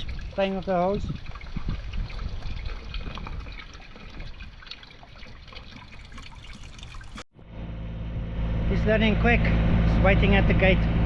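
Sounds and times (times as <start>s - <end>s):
water from hose splashing: 0.0s - 7.3s.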